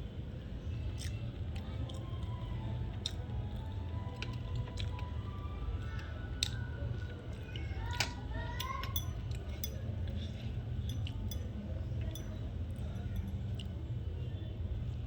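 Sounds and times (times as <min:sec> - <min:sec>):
steady low hum: 0:00.0 - 0:15.0
person chewing: 0:00.9 - 0:02.3, 0:02.9 - 0:05.2, 0:05.8 - 0:08.1.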